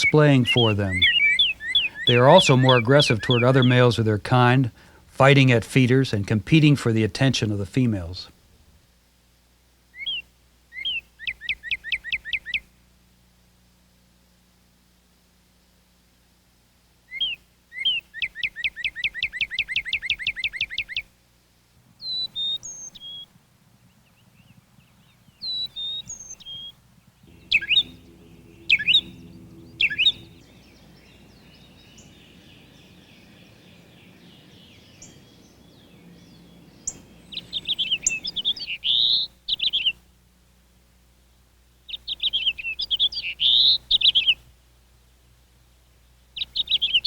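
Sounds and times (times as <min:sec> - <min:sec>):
rapid bird trill: 0:00.0 - 0:04.6, 0:09.9 - 0:12.7, 0:17.1 - 0:21.1, 0:22.0 - 0:23.4, 0:24.0 - 0:40.0, 0:41.9 - 0:44.4, 0:46.4 - 0:47.0
songbirds singing and calling: 0:00.0 - 0:08.4, 0:09.9 - 0:12.7, 0:17.1 - 0:21.1, 0:22.0 - 0:40.0, 0:41.8 - 0:44.5, 0:45.8 - 0:47.0.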